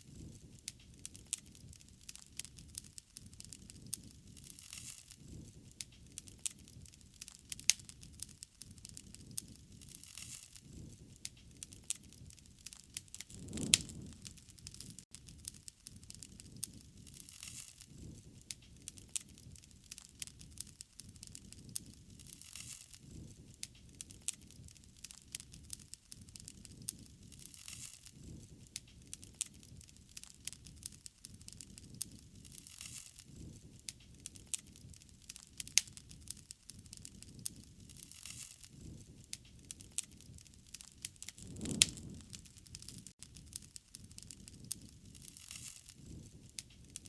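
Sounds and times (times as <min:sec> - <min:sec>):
wood fire crackling: 0:00.1 - 0:47.0
low rush: 0:13.3 - 0:14.3, 0:41.3 - 0:42.5.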